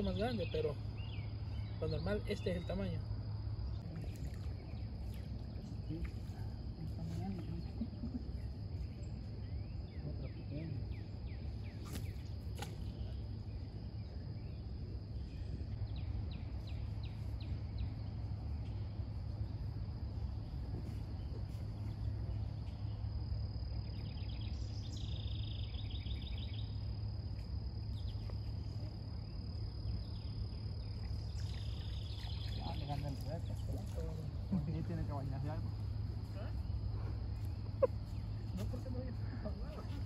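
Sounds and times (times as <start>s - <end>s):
bird chirping: 0.0s - 3.0s, 21.1s - 26.9s, 29.2s - 34.5s
thin high insect tone: 0.0s - 40.0s.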